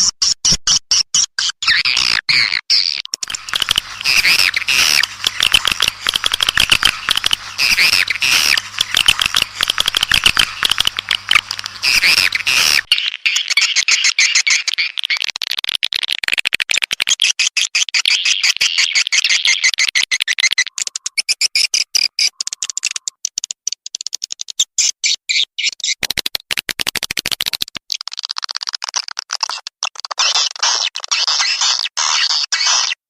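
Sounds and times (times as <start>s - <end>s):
swiftlet chittering twitters: 2.8s - 15.4s, 17.9s - 26.0s
low hum: 3.2s - 12.9s.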